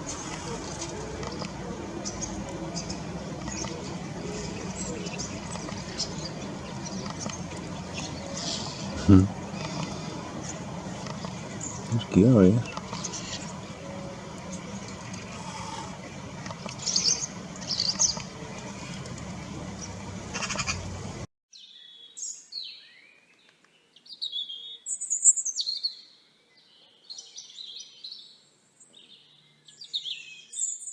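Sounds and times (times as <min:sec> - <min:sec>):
steady hiss: 0:00.0 - 0:21.3
songbirds chirping and warbling: 0:00.0 - 0:24.9, 0:25.6 - 0:30.9.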